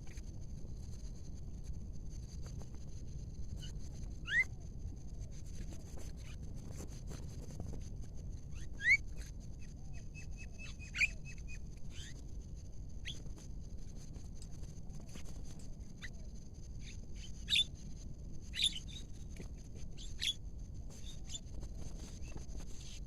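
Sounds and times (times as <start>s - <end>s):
bird whistling calls: 4.2s - 4.5s, 8.6s - 9.0s, 10.2s - 11.4s, 17.5s - 17.7s.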